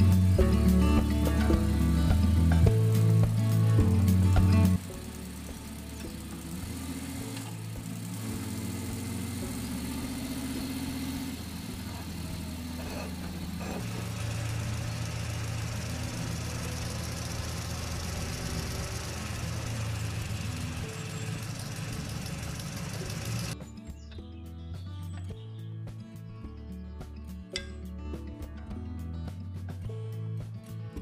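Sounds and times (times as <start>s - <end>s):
toy tractor motor humming: 2.8s - 23.6s.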